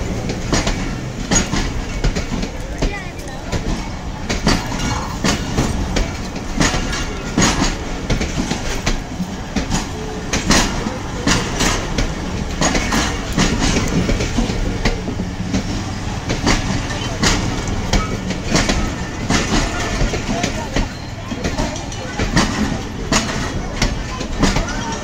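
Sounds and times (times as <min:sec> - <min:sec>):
train rumble: 0:00.0 - 0:25.0
wheels clacking over rail joints: 0:00.0 - 0:25.0.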